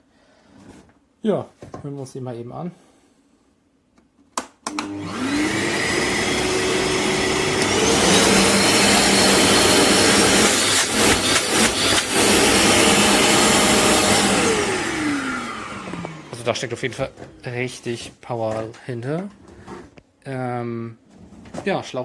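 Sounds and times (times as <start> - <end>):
vacuum cleaner switch click: 4.6 - 5.0, 7.5 - 7.8
vacuum cleaner motor whine: 4.7 - 17.4.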